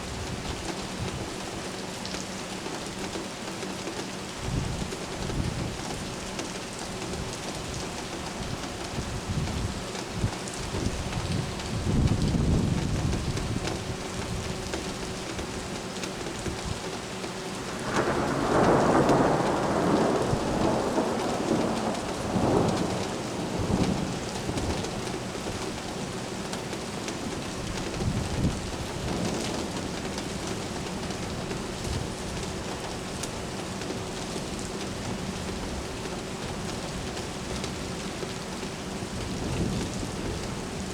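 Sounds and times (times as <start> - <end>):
steady rain falling: 0.0 - 40.9
thunder rumbling: 17.5 - 26.2.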